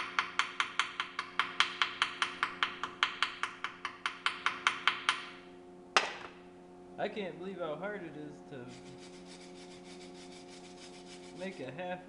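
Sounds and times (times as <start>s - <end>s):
hammer tapping metal: 0.0s - 5.3s.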